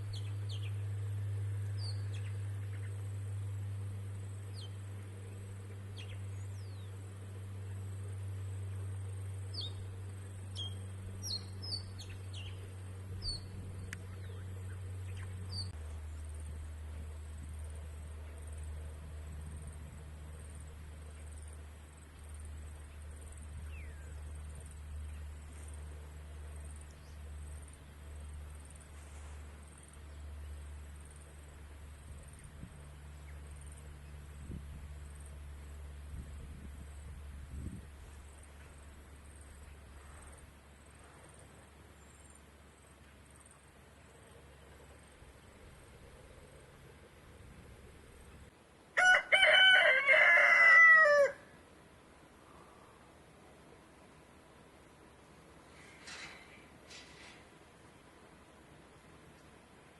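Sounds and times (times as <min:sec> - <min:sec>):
birds chirping: 0:00.0 - 0:03.3, 0:04.2 - 0:16.3
steady low hum: 0:00.0 - 0:49.4, 0:51.3 - 0:59.9.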